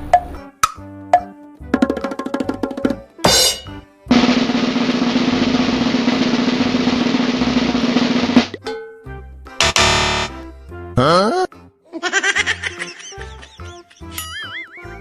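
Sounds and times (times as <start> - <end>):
snare drum roll: 4.1 - 8.6.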